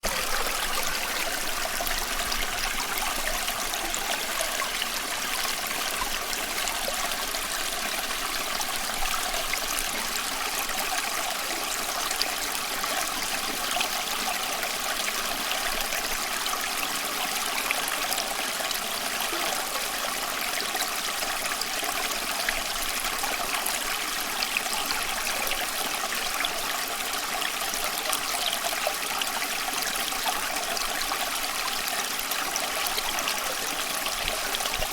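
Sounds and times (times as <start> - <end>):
stream babbling over stones: 0.0 - 34.9.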